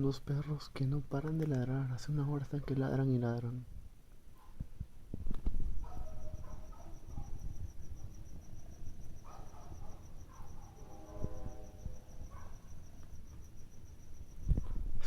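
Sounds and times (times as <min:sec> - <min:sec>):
cricket chirping: 0:00.0 - 0:15.0
faint distant calls: 0:05.8 - 0:14.8.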